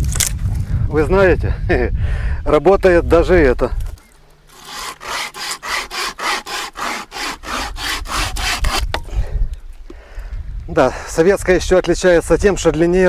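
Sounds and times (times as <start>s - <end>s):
hand saw cutting wood: 4.5s - 9.1s.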